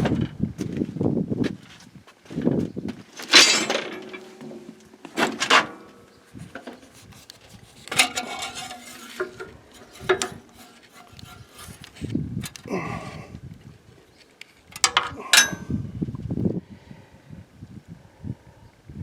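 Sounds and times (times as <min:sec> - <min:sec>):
light metal rattling: 0:03.2 - 0:04.8, 0:06.4 - 0:12.6, 0:14.7 - 0:15.8
metal knocks ringing: 0:14.8 - 0:15.8.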